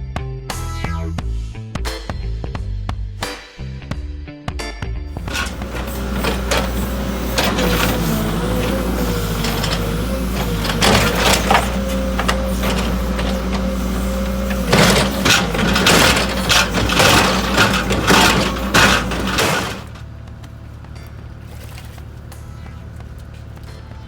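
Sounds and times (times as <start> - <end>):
large engine running: 5.1 - 24.0
scrapes and knocks: 5.2 - 20.0.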